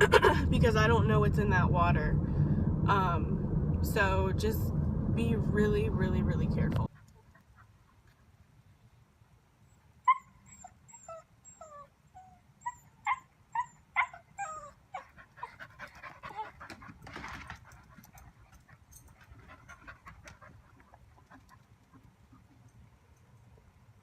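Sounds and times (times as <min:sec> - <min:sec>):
dog whimpering: 0:10.1 - 0:16.8.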